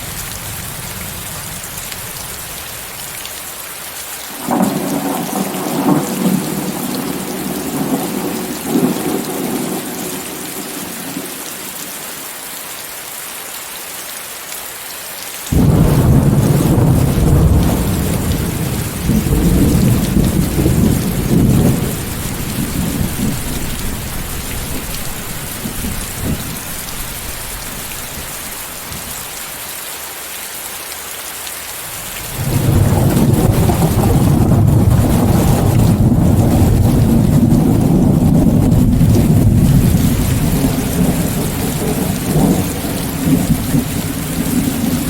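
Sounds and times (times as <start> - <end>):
rain hiss: 0.0 - 45.0
rolling thunder: 4.4 - 11.4, 15.5 - 29.2, 32.2 - 45.0.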